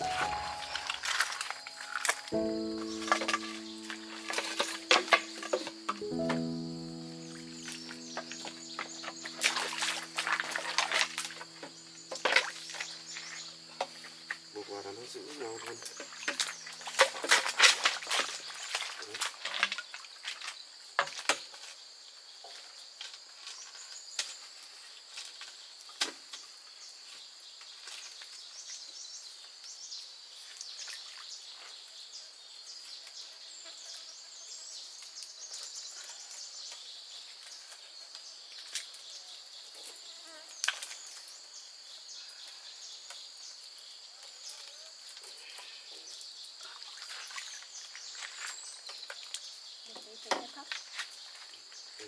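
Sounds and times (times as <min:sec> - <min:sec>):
high-pitched insect chorus: 0:00.0 - 0:19.4.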